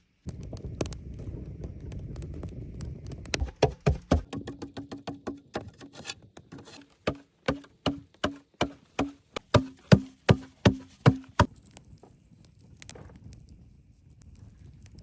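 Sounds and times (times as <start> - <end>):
tool striking wood: 3.4 - 11.5.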